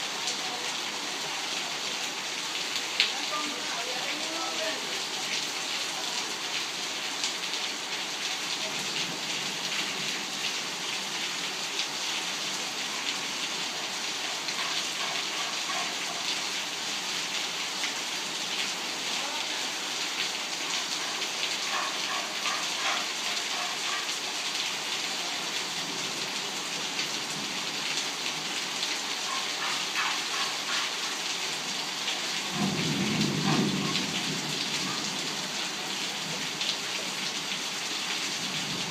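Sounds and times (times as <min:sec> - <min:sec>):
torrential rain pouring: 0:00.0 - 0:38.9
low rumble of thunder: 0:32.5 - 0:35.2.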